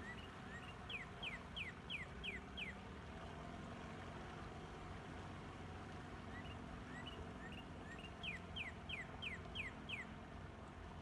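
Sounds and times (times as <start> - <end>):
songbird singing: 0.0 - 2.8, 6.2 - 10.2
distant outboard motor hum: 0.0 - 11.0.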